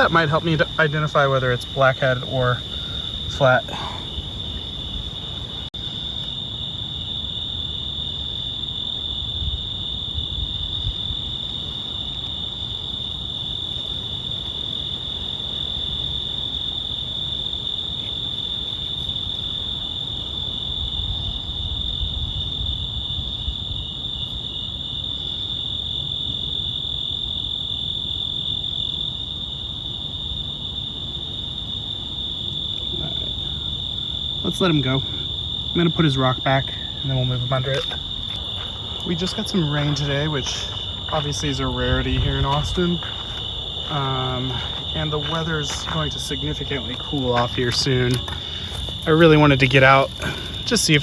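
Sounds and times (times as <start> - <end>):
crickets trilling: 0.0 - 51.0
low rumble: 37.7 - 49.2.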